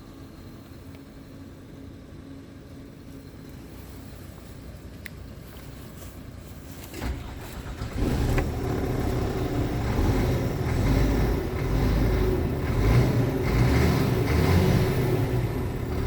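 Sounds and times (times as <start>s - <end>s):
diesel engine running: 0.0s - 16.0s
diesel engine cranking: 6.8s - 16.0s.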